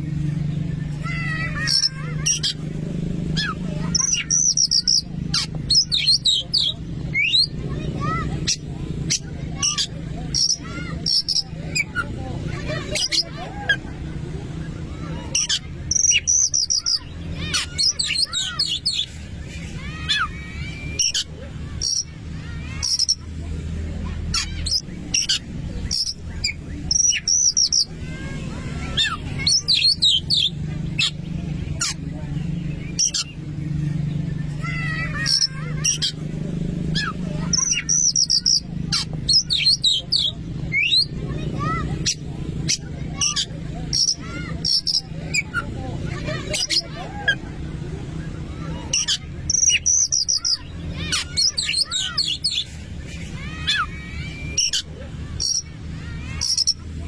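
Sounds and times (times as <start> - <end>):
songbird singing whistles and trills: 3.4 - 7.6, 15.4 - 17.1, 37.0 - 41.1.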